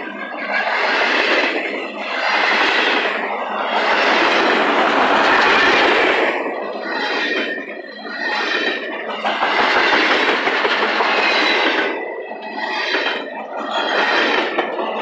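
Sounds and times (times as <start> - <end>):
freight train wheels clattering: 0.0 - 15.0.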